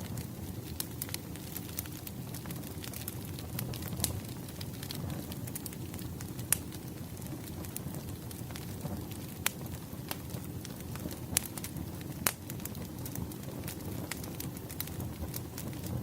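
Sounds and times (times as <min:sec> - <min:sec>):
logs crackling and popping: 0:00.0 - 0:16.0
low rumble of flame: 0:00.0 - 0:16.0.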